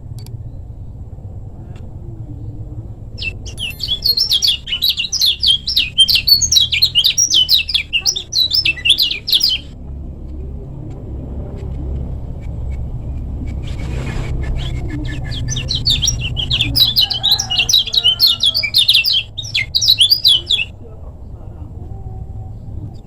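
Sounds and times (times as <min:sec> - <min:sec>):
steady low rumble: 0:00.0 - 0:23.0
bird twittering song: 0:02.5 - 0:09.8, 0:12.0 - 0:20.8.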